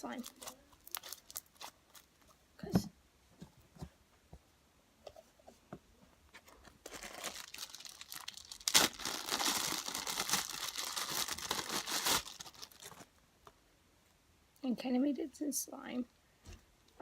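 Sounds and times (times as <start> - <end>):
slime crackling and tearing: 6.9 - 13.0.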